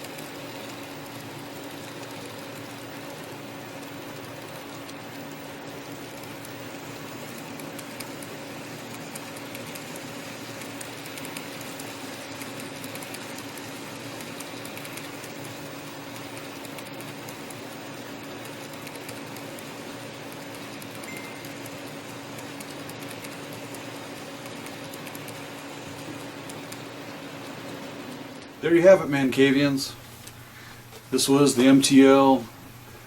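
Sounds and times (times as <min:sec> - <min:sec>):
model train motor hum: 0:00.0 - 0:21.1.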